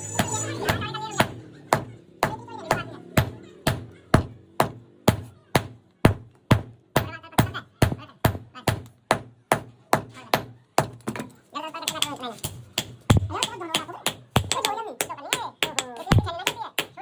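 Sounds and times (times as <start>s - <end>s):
hammer blows ringing: 0.0s - 10.9s.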